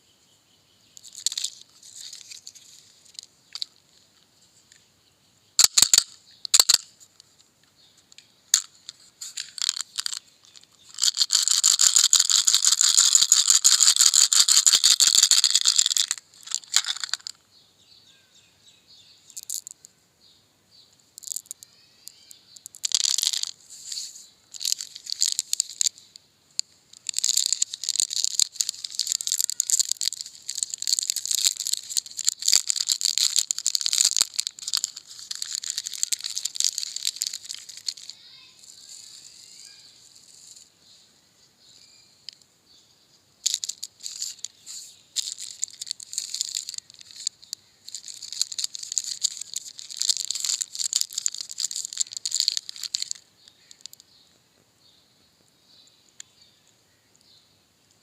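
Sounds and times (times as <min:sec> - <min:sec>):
small hard objects rattling: 0:01.0 - 0:04.0, 0:05.6 - 0:07.4, 0:08.5 - 0:17.4, 0:19.3 - 0:19.9, 0:21.2 - 0:40.7, 0:43.4 - 0:54.2.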